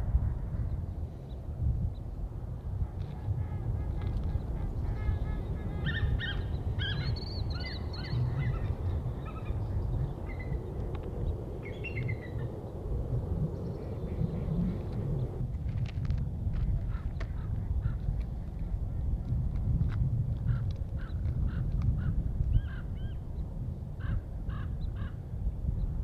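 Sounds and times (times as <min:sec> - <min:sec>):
steady low rumble: 0:00.0 - 0:26.0
birds chattering: 0:04.2 - 0:15.4.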